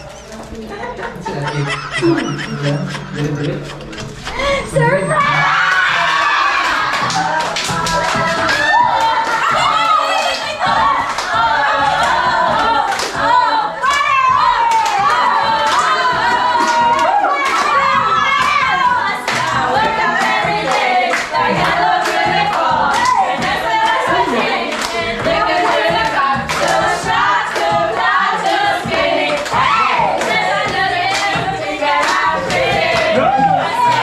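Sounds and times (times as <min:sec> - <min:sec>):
group of voices singing: 0:00.8 - 0:34.0
hand clapping: 0:29.2 - 0:34.0.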